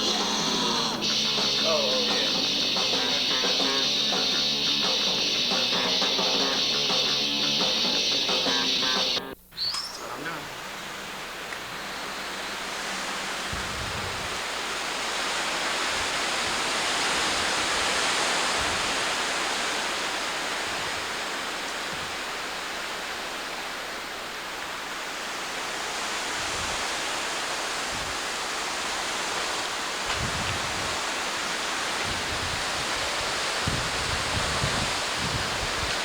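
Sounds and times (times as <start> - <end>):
strong wind rushing through trees: 0.0 - 9.0, 10.0 - 36.0
wind thumps on microphone: 30.1 - 31.0.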